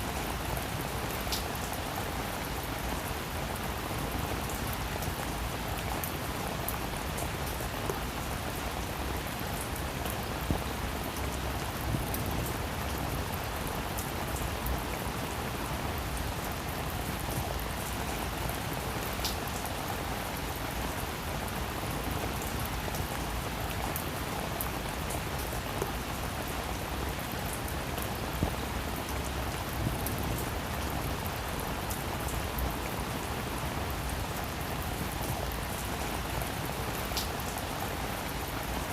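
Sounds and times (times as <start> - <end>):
heavy rain falling: 0.0 - 38.9
raindrops striking a surface: 0.0 - 38.9.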